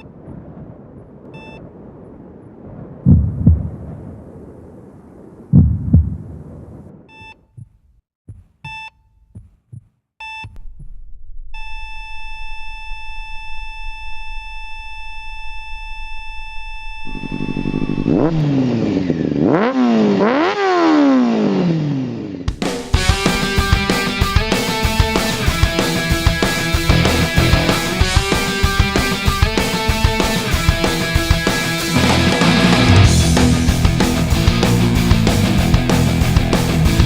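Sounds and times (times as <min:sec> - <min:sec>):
heart monitor beeps: 0:01.4 - 0:01.6, 0:07.1 - 0:07.8, 0:08.6 - 0:10.6, 0:11.6 - 0:18.3
heartbeat thump: 0:03.1 - 0:03.7, 0:05.6 - 0:06.2, 0:07.5 - 0:11.0
flatline tone: 0:10.2 - 0:18.5
motorcycle engine revving: 0:17.1 - 0:37.0.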